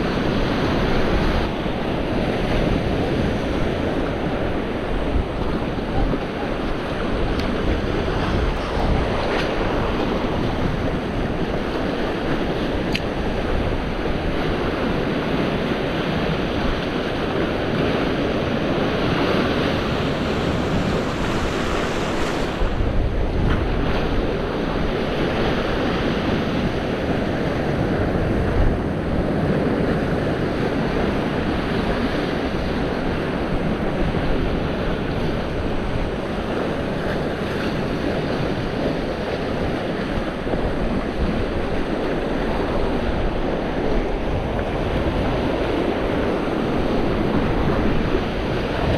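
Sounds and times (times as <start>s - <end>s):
surf washing against rocks: 0.0s - 48.9s
wind buffeting microphone: 0.0s - 48.9s.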